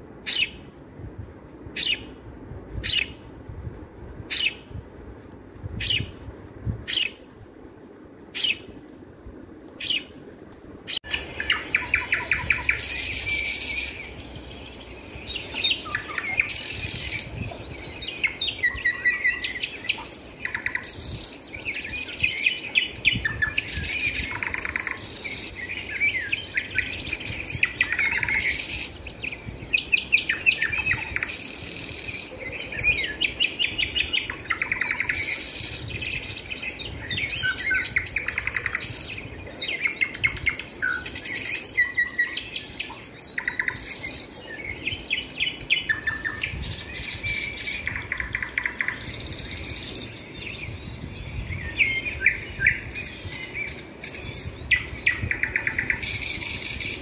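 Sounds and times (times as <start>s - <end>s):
birds chirping and chattering: 11.0s - 57.0s.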